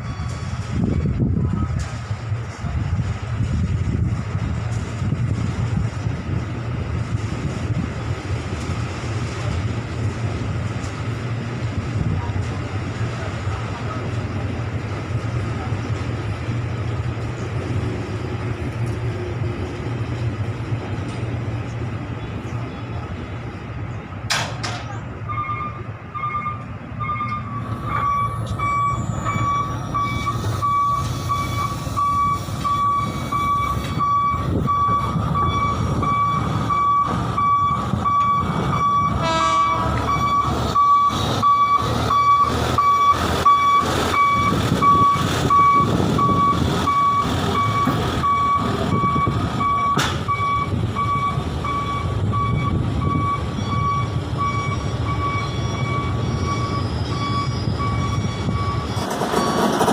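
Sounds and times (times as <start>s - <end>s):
high electronic warning beeps: 0.0s - 1.2s, 25.2s - 59.8s
heavy vehicle engine rumbling: 0.0s - 59.9s
knocks and clacks: 58.9s - 59.9s.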